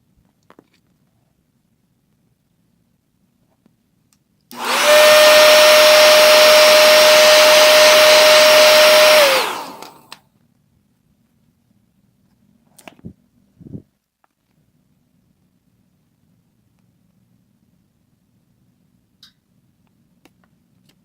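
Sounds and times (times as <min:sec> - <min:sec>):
hair dryer switch click: 0:04.5 - 0:05.0, 0:08.8 - 0:10.2
hair dryer blowing with whine: 0:04.5 - 0:10.2.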